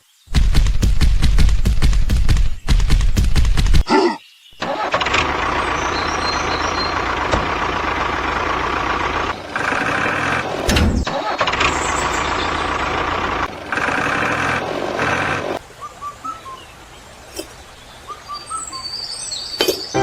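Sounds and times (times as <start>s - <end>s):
engine running: 4.6s - 15.6s
low thump: 10.7s - 11.1s.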